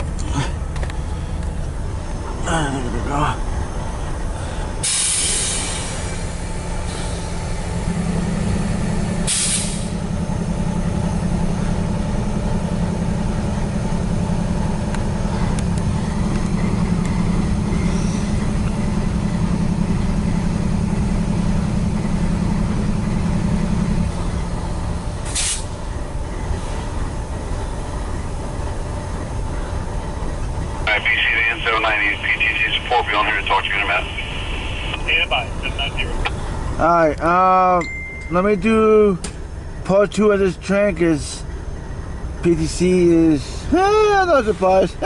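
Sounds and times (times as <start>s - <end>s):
diesel locomotive drone: 0.0s - 45.0s
sharp air hisses: 4.8s - 6.2s, 9.3s - 10.0s, 25.3s - 25.8s.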